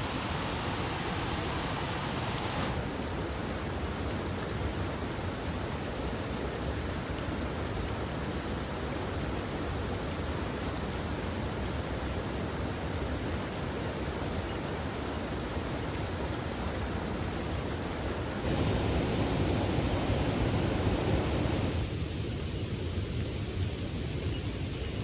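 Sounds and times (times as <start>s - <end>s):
heavy rain falling: 18.4s - 22.0s.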